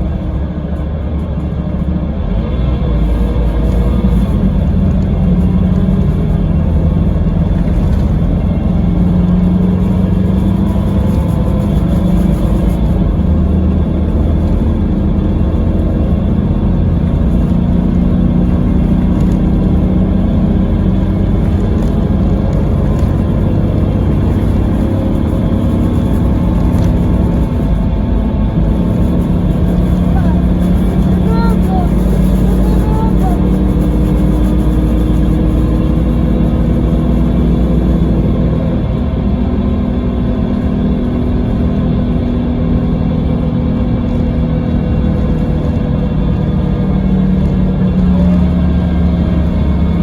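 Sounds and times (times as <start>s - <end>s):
coach diesel engine running: 0.0s - 50.0s.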